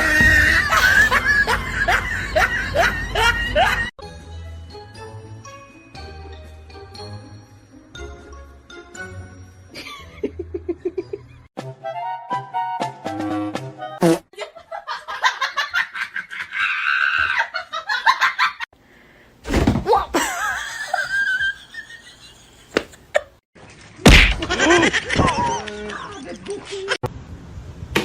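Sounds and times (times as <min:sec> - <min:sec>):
person laughing: 0:00.0 - 0:03.9, 0:09.8 - 0:11.5, 0:20.1 - 0:23.4, 0:24.4 - 0:27.0.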